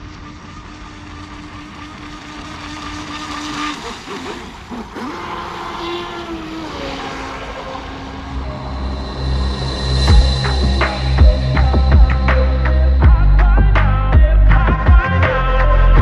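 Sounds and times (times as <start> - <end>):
water and wind noise: 0.0 - 9.1
electric motor whining: 0.0 - 13.8
music: 8.4 - 16.0.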